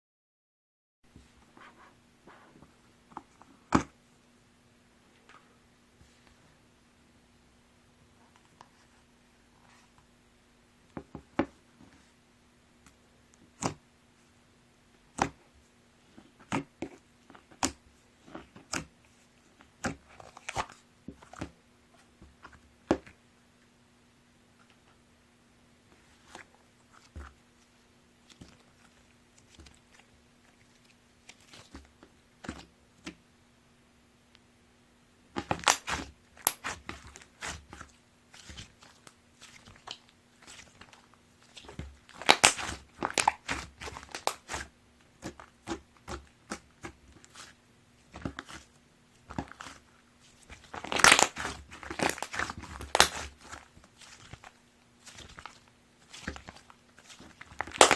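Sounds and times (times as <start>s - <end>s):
slime crackling and popping: 35.4s - 37.8s, 38.4s - 47.4s, 50.5s - 57.9s.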